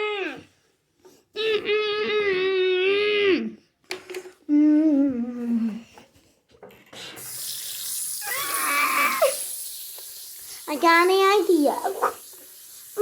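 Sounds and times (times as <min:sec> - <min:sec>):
running water: 0:07.2 - 0:13.0.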